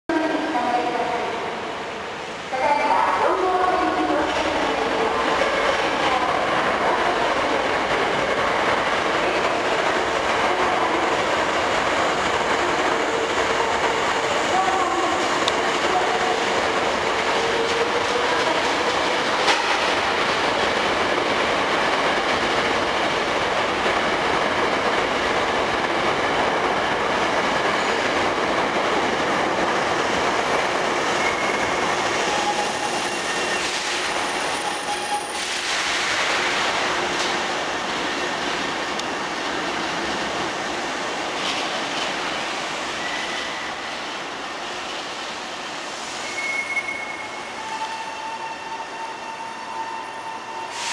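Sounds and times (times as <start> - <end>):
train wheel and rail rumble: 0.1 - 50.9
high wheel squeals braking: 46.2 - 50.8.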